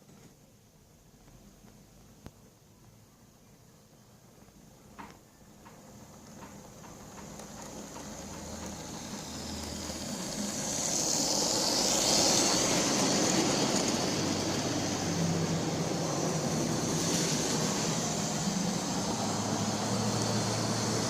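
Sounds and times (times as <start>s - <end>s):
wheels rattling on rails: 5.6s - 21.0s
model train motor whirring: 6.1s - 21.0s.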